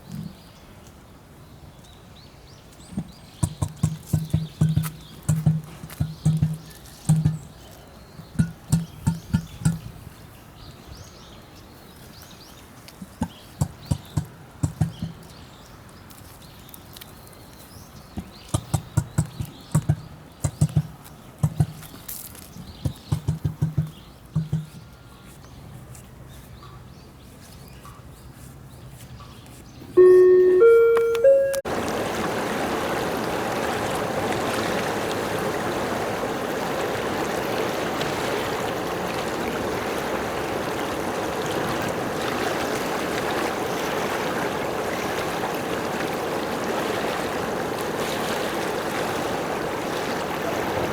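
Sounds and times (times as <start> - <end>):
emu drumming call: 30.0 - 31.8.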